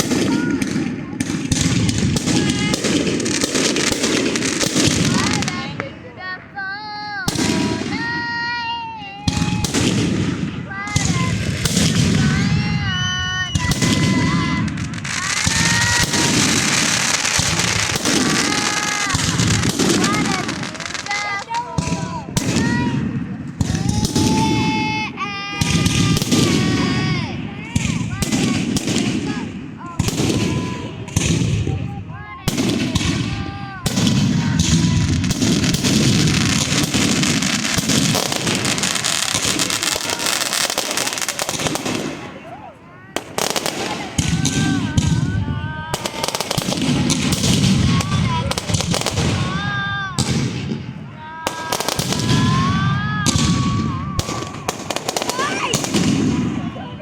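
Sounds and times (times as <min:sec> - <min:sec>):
fireworks bangs and crackles: 0:00.0 - 0:57.0
high firework whistles: 0:00.0 - 0:57.0.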